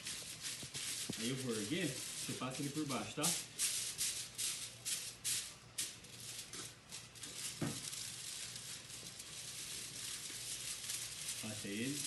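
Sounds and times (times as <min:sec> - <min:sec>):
aluminium foil crinkling: 0:00.0 - 0:12.0
faint hiss: 0:00.0 - 0:12.0.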